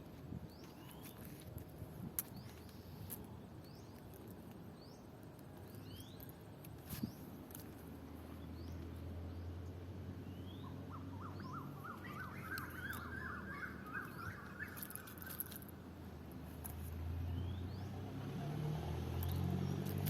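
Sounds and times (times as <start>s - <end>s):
birds chirping: 2.2s - 15.7s.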